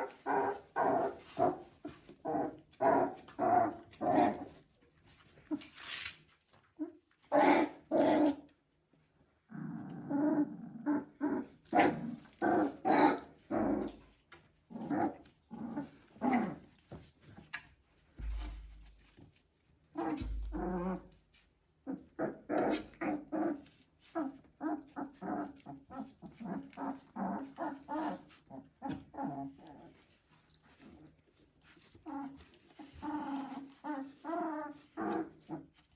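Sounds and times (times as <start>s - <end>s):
puppies growling whining and yipping: 0.0s - 4.6s, 9.5s - 16.8s, 20.0s - 21.2s, 21.8s - 35.9s.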